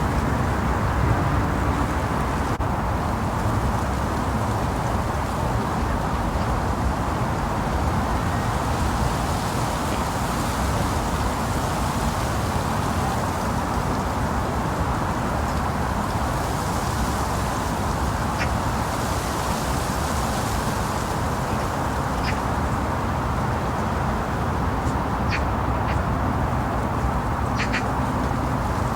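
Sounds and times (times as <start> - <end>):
rushing outdoor background noise: 0.0 - 28.9
short high bird calls: 25.3 - 26.0, 27.5 - 28.0.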